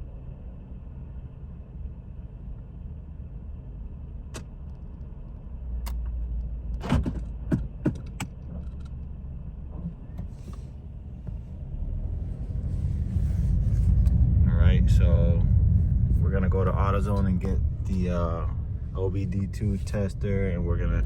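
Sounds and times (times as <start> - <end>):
sharp clicks and knocks: 6.8 - 9.1.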